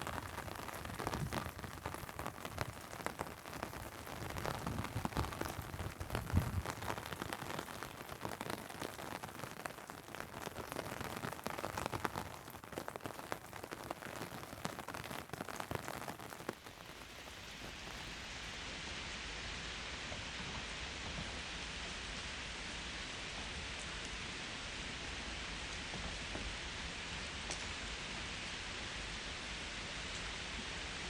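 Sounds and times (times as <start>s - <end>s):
raindrops clicking on umbrella: 0.0s - 18.4s
rain hissing: 0.0s - 31.0s.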